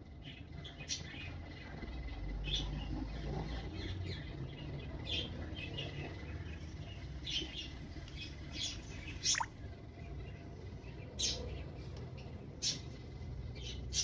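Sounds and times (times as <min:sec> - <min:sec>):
parrot chirping: 0:09.3 - 0:09.5.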